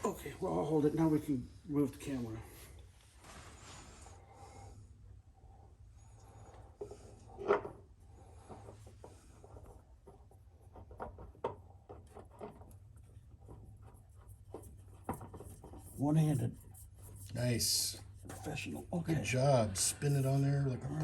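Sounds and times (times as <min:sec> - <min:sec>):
faint handling rubbing: 0:05.4 - 0:21.0.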